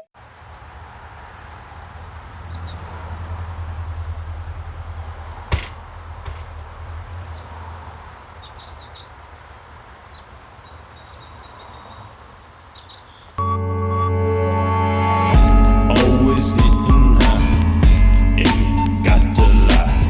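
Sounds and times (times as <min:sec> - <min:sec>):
small birds chirping: 0:00.0 - 0:13.4
music: 0:13.4 - 0:20.0.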